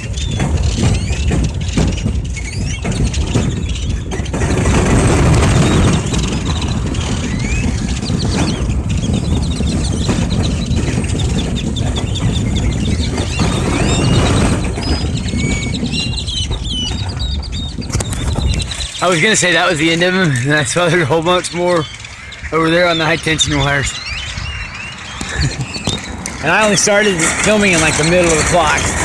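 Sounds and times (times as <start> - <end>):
flock of birds chirping and whistling: 0.0 - 29.0
steady low rumble: 0.0 - 29.0.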